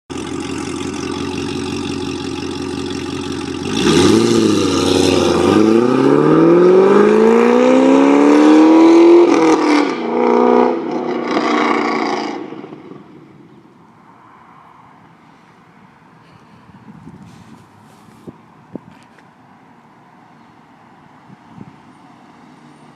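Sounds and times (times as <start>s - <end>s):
car engine idling and revving: 0.1s - 14.2s
car accelerating hard: 0.9s - 13.0s.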